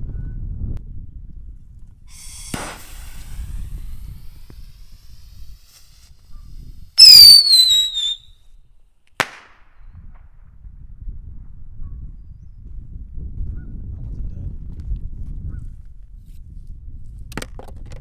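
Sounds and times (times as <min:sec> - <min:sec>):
wind on microphone: 0:00.0 - 0:08.2, 0:09.9 - 0:18.0
firework bang: 0:02.1 - 0:06.3, 0:07.0 - 0:08.2
firework pop with hiss: 0:02.1 - 0:08.2
firework whistle: 0:02.1 - 0:08.2.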